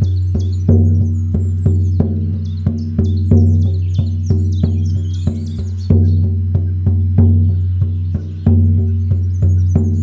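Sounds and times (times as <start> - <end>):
birds singing: 0.0 - 10.0
frame drum booming: 0.0 - 10.0.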